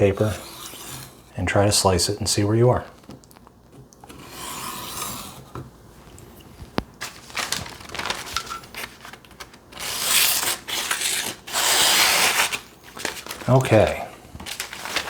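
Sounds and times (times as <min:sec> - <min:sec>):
paper crinkling: 0:06.6 - 0:15.0
knife slicing paper: 0:07.0 - 0:15.0.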